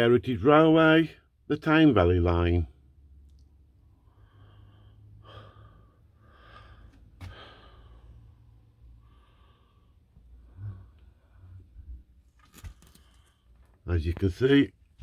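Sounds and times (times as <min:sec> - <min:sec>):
low steady hum: 0:00.0 - 0:15.0
faint breathing: 0:03.8 - 0:12.1, 0:12.7 - 0:13.8.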